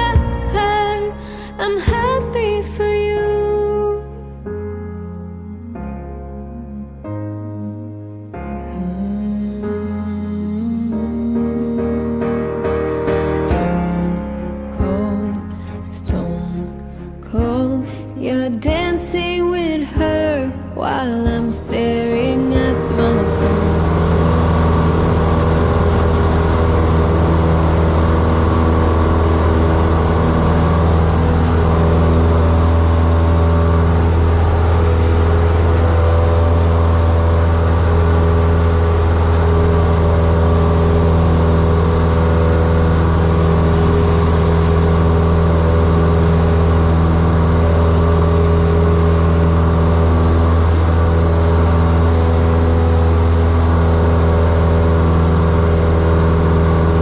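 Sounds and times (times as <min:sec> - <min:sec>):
airplane propeller engine drone: 0:22.1 - 0:57.0.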